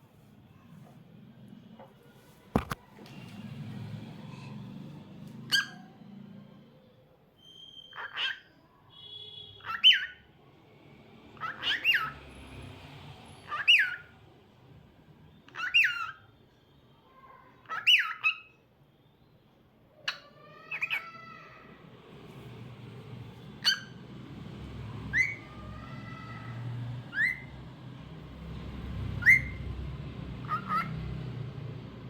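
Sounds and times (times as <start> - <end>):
cockatiel chirping: 7.6 - 8.5, 11.4 - 12.1, 15.5 - 16.2, 25.1 - 26.3, 29.2 - 29.6, 30.4 - 30.9.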